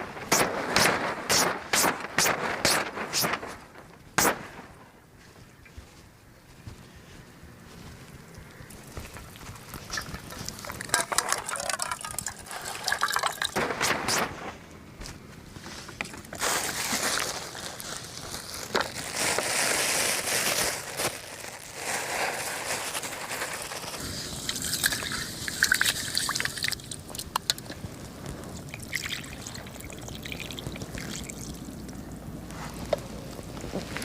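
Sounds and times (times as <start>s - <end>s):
water trickling and pouring: 9.3s - 13.6s, 24.3s - 27.3s, 28.6s - 31.9s.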